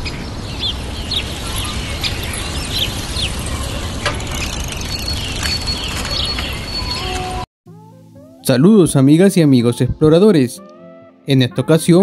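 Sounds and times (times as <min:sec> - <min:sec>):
birds chirping: 0:00.0 - 0:07.4.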